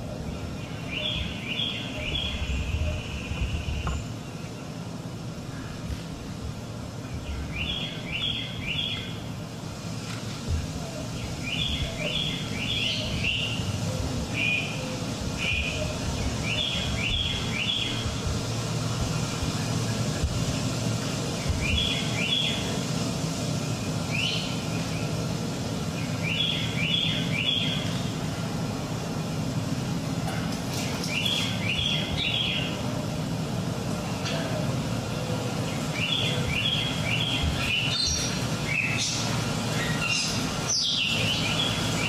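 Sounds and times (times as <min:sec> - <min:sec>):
steady low rumble: 0:00.0 - 0:40.7
bird chirps: 0:07.1 - 0:09.2, 0:30.9 - 0:32.8, 0:35.7 - 0:42.0.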